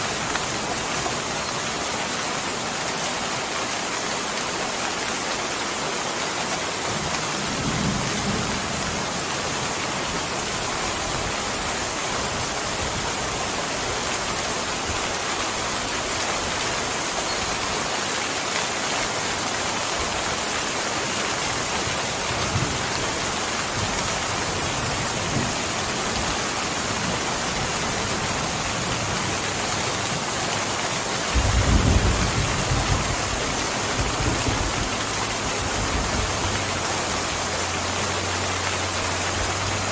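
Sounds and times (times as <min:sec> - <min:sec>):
heavy rain hissing: 0:00.0 - 0:39.9
distant thunder rumbling: 0:31.3 - 0:34.9.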